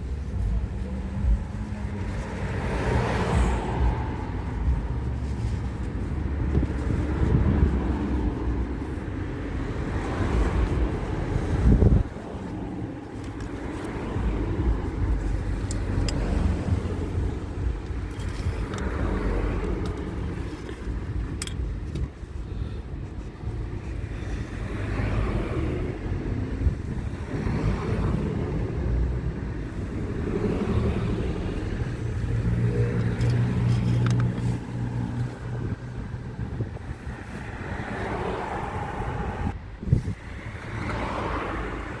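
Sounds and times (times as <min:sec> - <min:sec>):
car engine running: 0:00.0 - 0:27.3.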